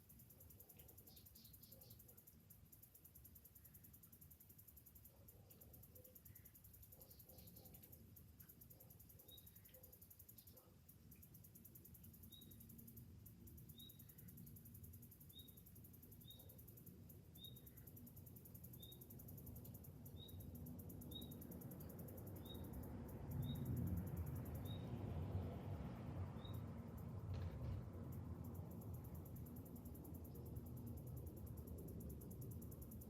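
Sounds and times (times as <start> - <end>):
cicadas buzzing: 11.2 - 27.2, 27.8 - 33.0.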